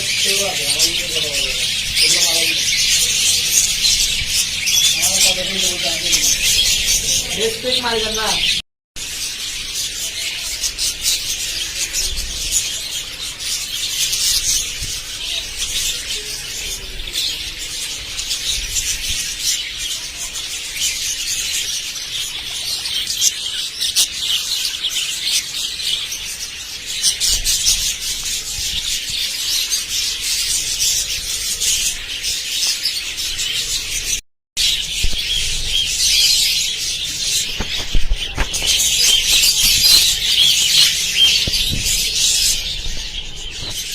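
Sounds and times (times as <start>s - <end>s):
budgerigars chattering: 0.0s - 43.9s.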